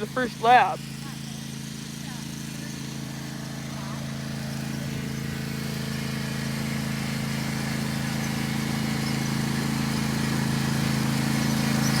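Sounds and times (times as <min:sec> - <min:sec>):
lawnmower engine running: 0:00.0 - 0:12.0.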